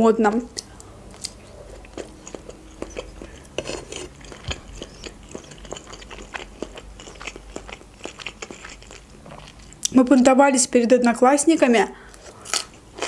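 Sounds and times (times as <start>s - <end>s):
mouth chewing pasta: 0.3s - 10.0s.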